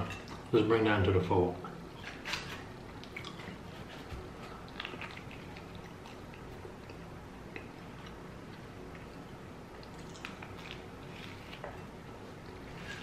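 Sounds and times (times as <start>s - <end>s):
person chewing food: 2.0s - 13.0s.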